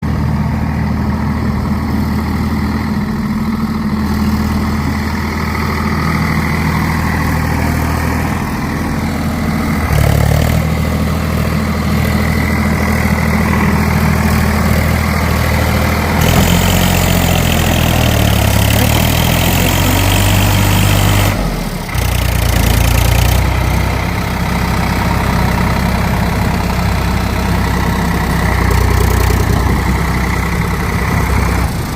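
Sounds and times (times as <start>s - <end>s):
tractor diesel engine straining: 0.0s - 31.9s.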